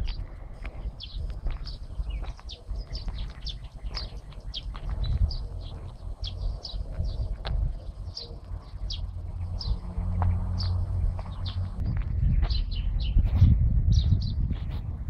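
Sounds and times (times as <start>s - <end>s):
small birds chirping: 0.0s - 14.9s
steady low rumble: 0.0s - 15.0s.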